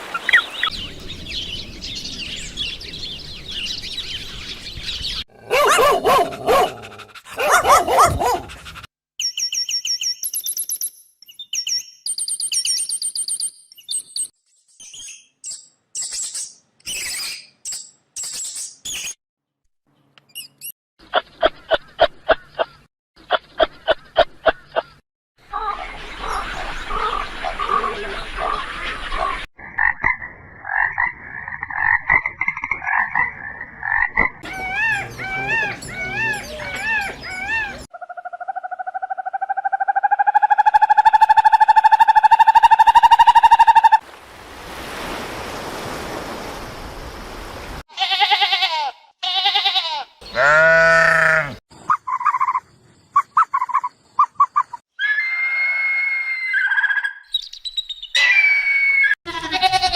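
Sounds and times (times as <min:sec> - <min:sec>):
rising animal call: 0:34.4 - 0:44.0, 0:50.2 - 0:52.2, 0:55.0 - 0:57.2, 0:58.2 - 0:59.9
wavering animal calls: 0:34.4 - 0:44.0, 0:49.3 - 0:52.6.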